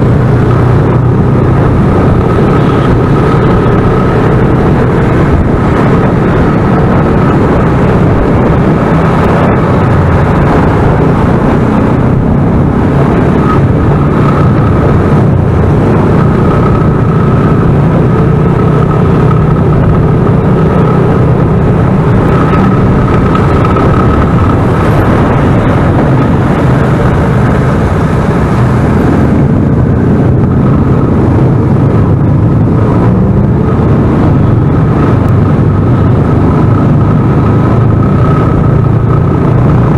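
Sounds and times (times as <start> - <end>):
motorcycle engine and wind rush: 0.0 - 39.9
thin steady whine: 12.8 - 35.1.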